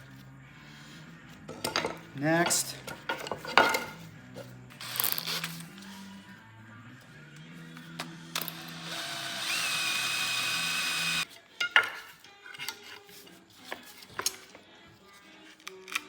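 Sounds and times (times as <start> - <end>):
quiet background music: 0.0 - 16.0
metal tools clicking and clanking: 1.5 - 4.0
power tool whining: 8.3 - 11.2.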